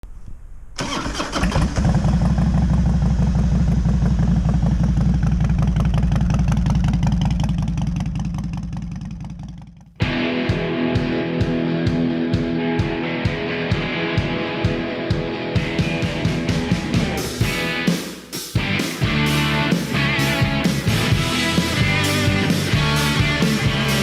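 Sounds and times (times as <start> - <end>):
motorcycle engine rumble: 0.1 - 10.0
guitar music: 10.0 - 18.0, 18.6 - 24.0.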